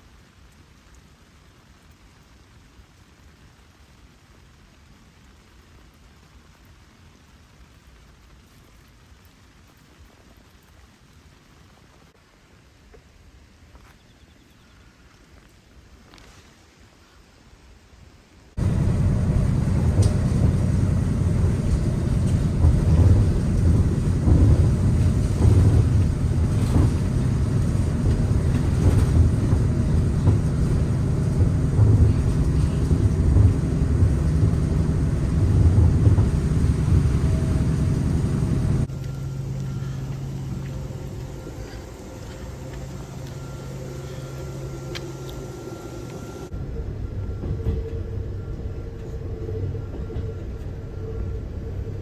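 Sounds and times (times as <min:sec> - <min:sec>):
quiet steady hum: 0:18.6 - 0:52.0
vehicle rumble in motion: 0:18.6 - 0:52.0.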